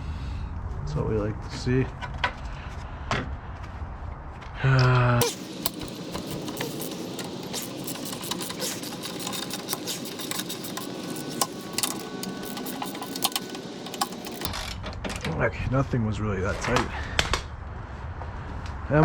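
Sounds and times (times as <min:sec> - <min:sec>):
ratchet wrench clicking: 0:05.2 - 0:14.5.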